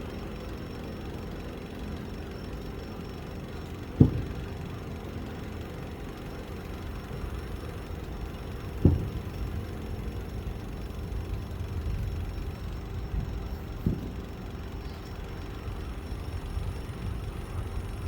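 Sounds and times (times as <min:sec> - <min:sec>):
low background rumble: 0:00.0 - 0:18.0
firework shells booming: 0:03.9 - 0:04.7, 0:08.6 - 0:09.7, 0:13.7 - 0:14.3.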